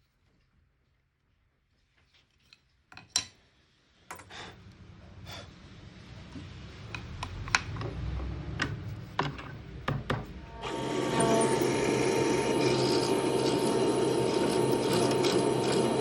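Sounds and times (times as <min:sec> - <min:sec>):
tools knocking on workbench: 0:08.6 - 0:10.3.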